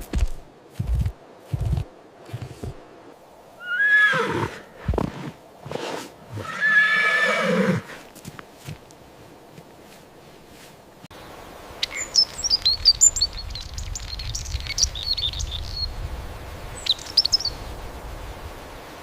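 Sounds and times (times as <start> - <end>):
horse neighing: 3.6 - 4.7, 6.3 - 8.0.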